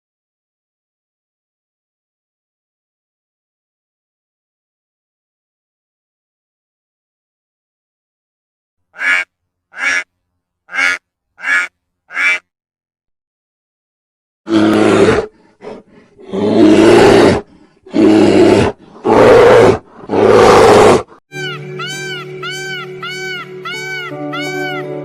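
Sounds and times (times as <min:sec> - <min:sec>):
harsh drawn-out animal calls: 0:09.0 - 0:10.0, 0:10.7 - 0:12.4.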